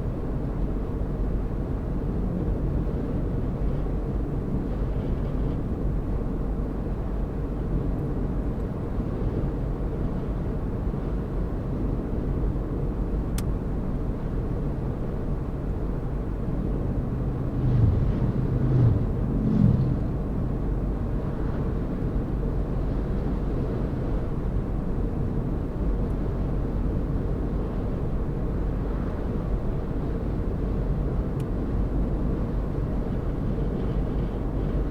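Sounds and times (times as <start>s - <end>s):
car engine and tyre rumble: 0.0s - 34.9s
higher pitched engine note: 17.0s - 21.0s.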